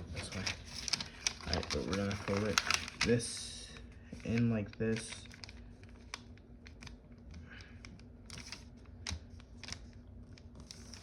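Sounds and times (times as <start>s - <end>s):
foil paper rustling: 0.0s - 6.9s
foil creasing clicks: 0.3s - 3.2s.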